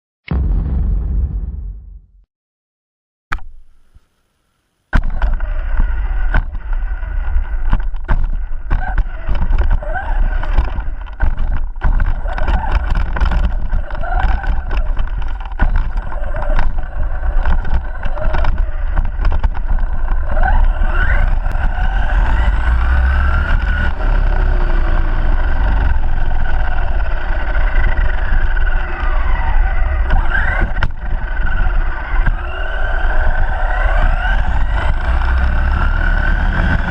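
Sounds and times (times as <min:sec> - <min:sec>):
heavy low rumble: 0:00.3 - 0:02.2
electric motor whining: 0:05.0 - 0:36.9.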